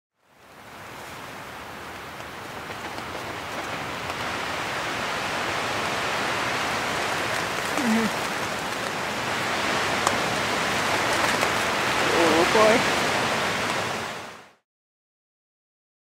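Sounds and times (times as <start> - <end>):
rain on a tent: 0.1 - 14.6.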